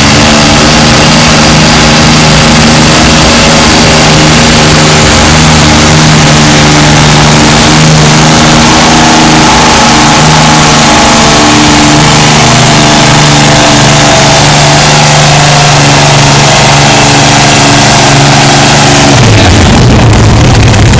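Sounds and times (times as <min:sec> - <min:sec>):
tractor engine running hard: 0:00.0 - 0:20.9.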